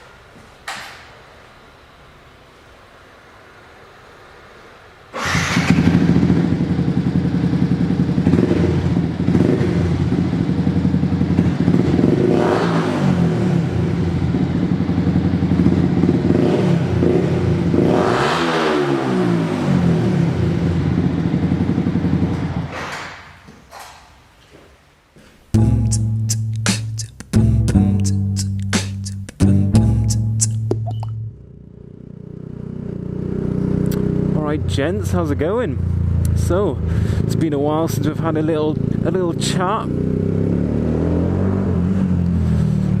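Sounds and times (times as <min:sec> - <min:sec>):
motorcycle engine revving: 0:05.2 - 0:22.9, 0:31.2 - 0:43.0
motorcycle engine idling: 0:05.3 - 0:12.3, 0:13.3 - 0:17.8, 0:19.9 - 0:22.7, 0:31.2 - 0:40.6.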